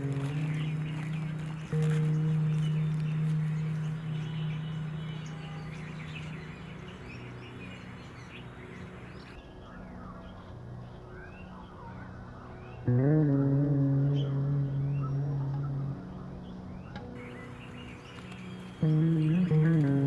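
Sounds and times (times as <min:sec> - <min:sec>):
birds chirping and twittering: 0:00.0 - 0:12.9, 0:14.9 - 0:20.0
low note of background music: 0:00.0 - 0:20.0
outdoor background noise: 0:00.0 - 0:20.0.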